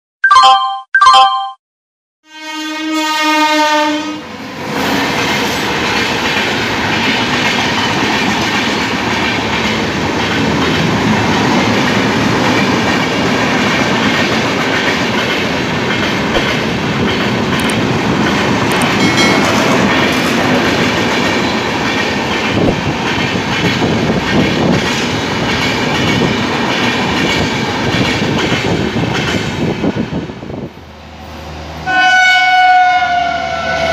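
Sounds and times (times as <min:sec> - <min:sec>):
intro chime: 0:00.2 - 0:01.6
train horn: 0:02.2 - 0:04.3, 0:31.8 - 0:33.9
express train passing at speed: 0:02.4 - 0:33.9.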